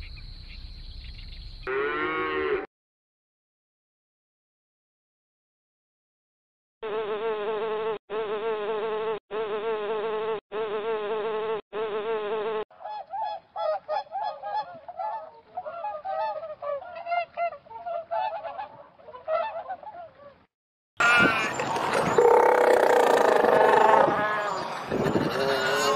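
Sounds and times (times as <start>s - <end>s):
geese honking: 12.8s - 20.4s.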